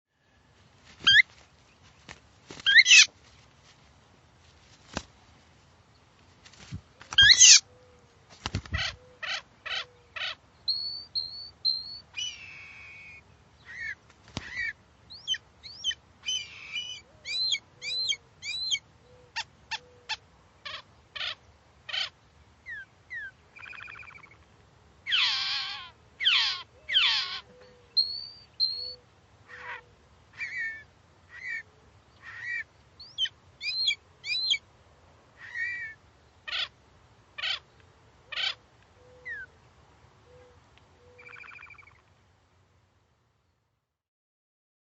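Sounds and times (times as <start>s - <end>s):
bird whistling and chirping: 10.7s - 13.2s, 15.1s - 18.8s, 26.9s - 29.0s, 33.0s - 34.6s.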